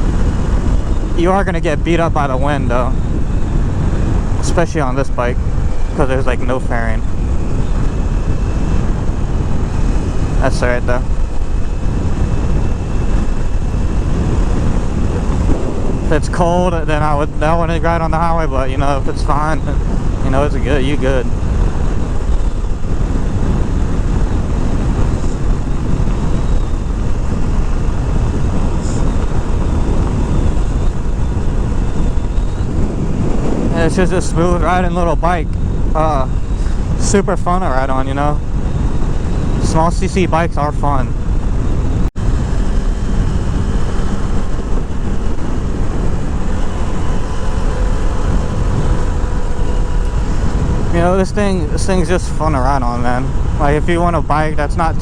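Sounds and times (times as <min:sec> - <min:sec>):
motorcycle engine running: 0:00.0 - 0:37.0, 0:40.8 - 0:53.8
wind rush over microphone: 0:00.0 - 0:55.0.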